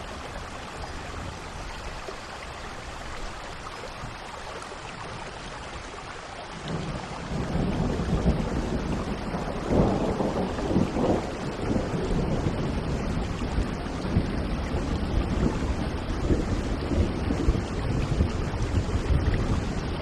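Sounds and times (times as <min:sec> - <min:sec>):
heavy rain: 0:00.0 - 0:20.0
rolling thunder: 0:06.6 - 0:20.0.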